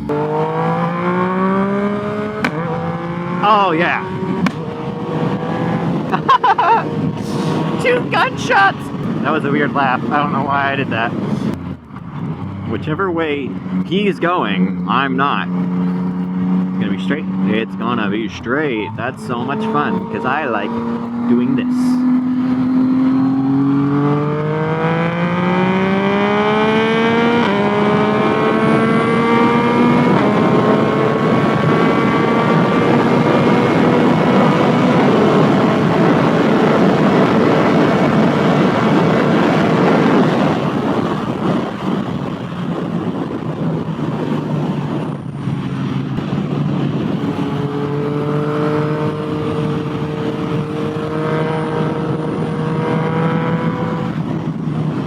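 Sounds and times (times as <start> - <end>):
motorcycle engine accelerating: 0.0 - 55.0
wind noise: 0.0 - 55.0.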